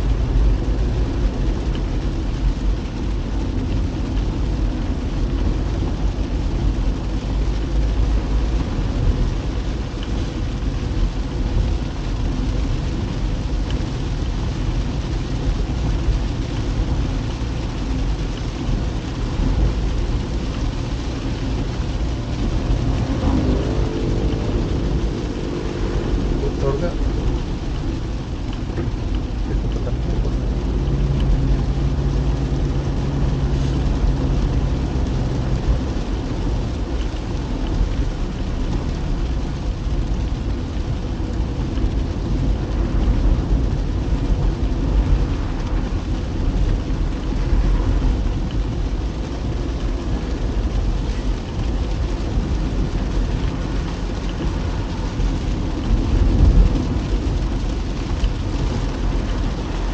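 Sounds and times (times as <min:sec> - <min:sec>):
rain hissing: 0:00.0 - 0:59.9
road and engine rumble: 0:00.0 - 0:59.9
engine drone: 0:19.1 - 0:40.0.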